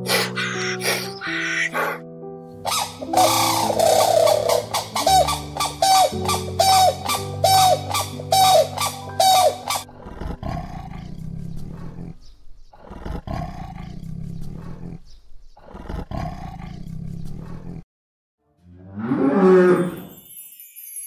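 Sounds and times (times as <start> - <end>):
big cat roaring: 9.8 - 17.8.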